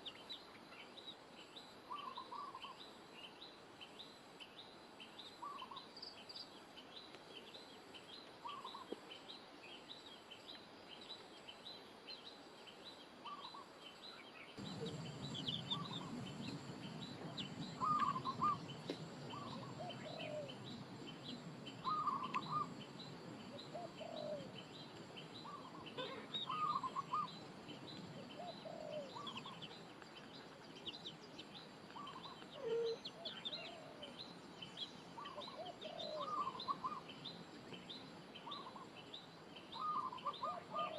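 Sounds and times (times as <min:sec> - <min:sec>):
birds chirping: 0:10.0 - 0:40.9
low bird call notes: 0:14.6 - 0:20.7, 0:21.7 - 0:22.8, 0:25.4 - 0:27.4
low rushing noise: 0:14.6 - 0:21.9.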